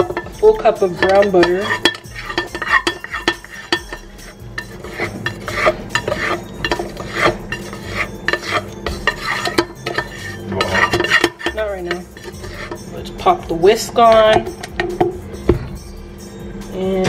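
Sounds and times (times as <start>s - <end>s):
utensil scraping a bowl: 0.0s - 13.4s.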